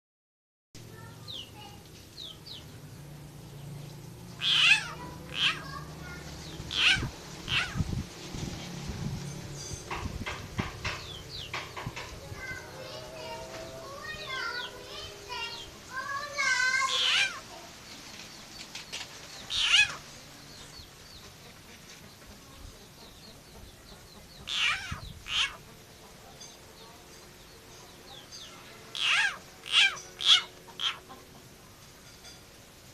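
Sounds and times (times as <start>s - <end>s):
frog screaming: 4.4s - 5.7s, 6.7s - 7.8s, 16.9s - 17.4s, 19.5s - 20.0s, 24.5s - 25.6s, 28.9s - 31.0s
faint high chirping: 4.4s - 7.8s.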